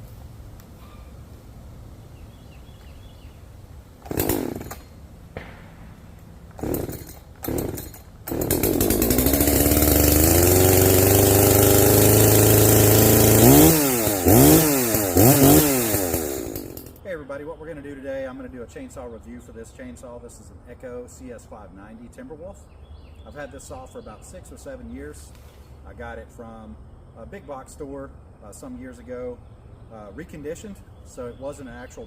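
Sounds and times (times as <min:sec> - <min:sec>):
chainsaw revving: 0:04.0 - 0:05.0, 0:06.5 - 0:17.0
chainsaw starting and idling: 0:04.0 - 0:05.1, 0:06.4 - 0:17.0.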